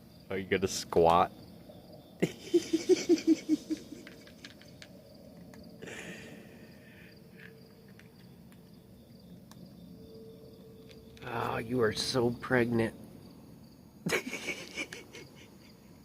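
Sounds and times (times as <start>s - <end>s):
crickets chirring: 0.0s - 16.0s
person laughing: 2.2s - 4.5s, 5.8s - 6.6s, 14.1s - 15.8s.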